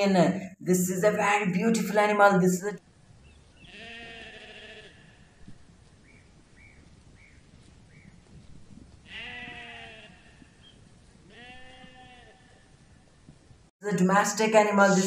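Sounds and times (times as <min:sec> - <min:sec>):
sheep bleating: 0:03.7 - 0:05.4, 0:09.1 - 0:10.6, 0:11.3 - 0:12.7.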